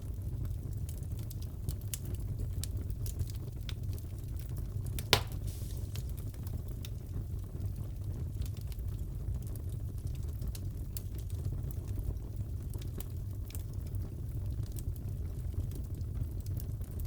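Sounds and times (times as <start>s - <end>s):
low fire rumble: 0.0s - 17.0s
wood fire crackling: 0.1s - 17.0s
loud fire pop: 5.0s - 6.2s.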